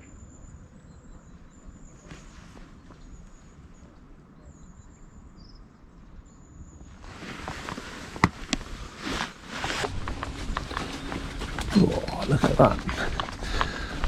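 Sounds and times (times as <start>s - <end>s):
rustling and brushing: 2.0s - 3.1s, 6.9s - 14.0s.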